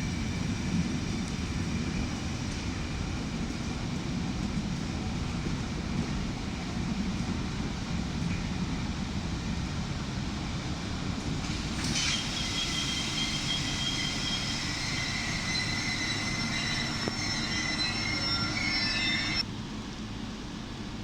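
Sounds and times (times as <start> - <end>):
train rumbling: 0.0 - 21.0
train wheels squealing on rails: 11.4 - 19.5.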